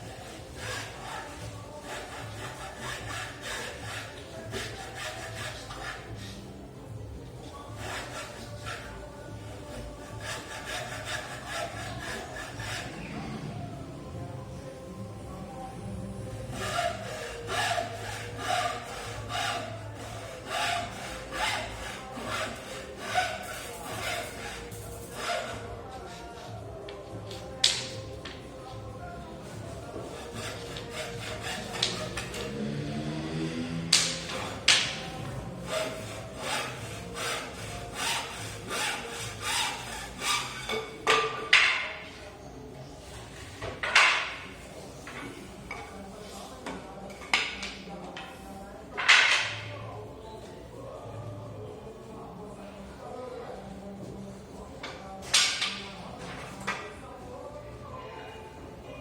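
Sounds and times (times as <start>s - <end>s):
hand tool rasping on wood: 0.0s - 6.4s, 7.7s - 13.3s, 16.4s - 25.7s, 29.6s - 32.7s, 33.8s - 40.9s
scraping strokes: 0.0s - 6.5s, 7.5s - 13.6s, 16.3s - 26.5s, 33.8s - 41.7s.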